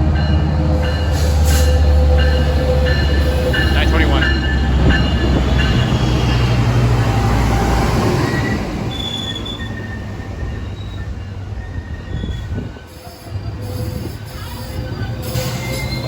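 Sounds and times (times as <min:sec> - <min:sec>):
low locomotive drone: 0:00.0 - 0:12.8
train wheels squealing: 0:00.2 - 0:16.0.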